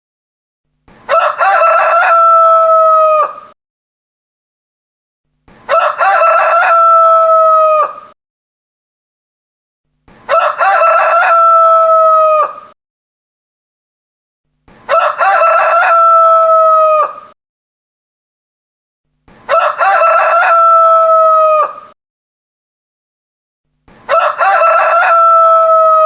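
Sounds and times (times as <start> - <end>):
rooster crowing: 1.1 - 3.6, 5.7 - 8.2, 10.3 - 12.8, 14.9 - 17.4, 19.5 - 22.0, 24.1 - 26.0.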